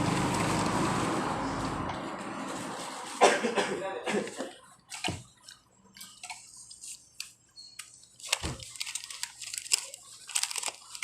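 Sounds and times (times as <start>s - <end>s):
food packaging crackling: 0.0s - 3.2s, 4.6s - 11.0s
crinkly clicks: 7.2s - 11.0s.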